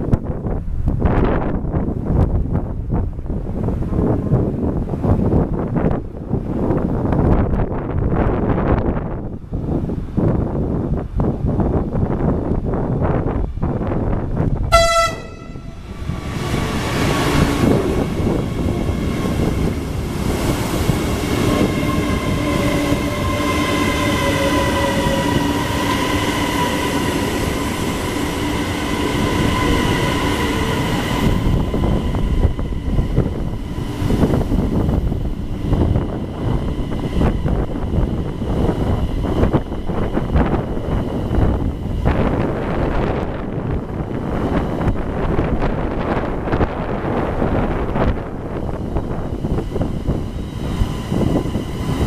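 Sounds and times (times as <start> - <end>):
electric train whine: 0.0 - 52.0
train wheels rumbling on rail: 0.0 - 52.0
train horn blast: 14.7 - 16.1, 21.5 - 32.6.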